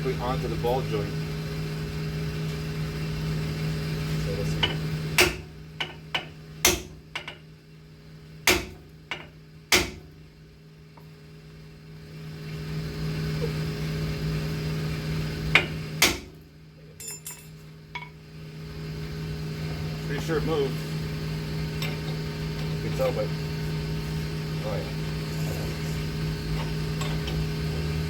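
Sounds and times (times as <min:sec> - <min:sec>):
steady low hum: 0:00.0 - 0:28.0
hammer striking metal press: 0:04.6 - 0:07.4, 0:08.5 - 0:10.1, 0:15.6 - 0:16.4.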